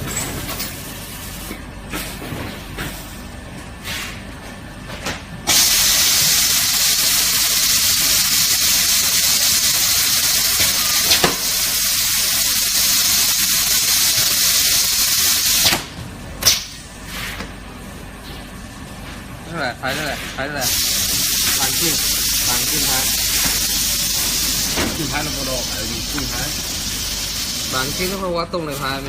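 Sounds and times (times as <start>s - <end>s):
loud hiss of air: 5.5s - 15.8s, 20.6s - 28.2s.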